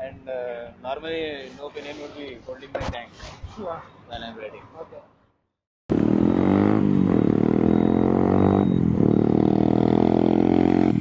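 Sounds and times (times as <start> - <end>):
motorcycle engine running loudly: 5.9 - 11.0.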